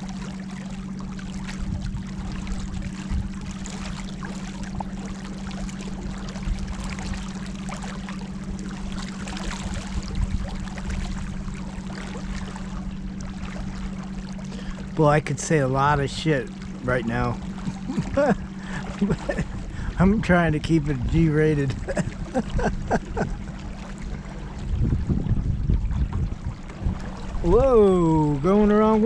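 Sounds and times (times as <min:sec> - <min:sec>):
boat motor running: 0:00.0 - 0:29.0
water splashing along hull: 0:00.0 - 0:29.0.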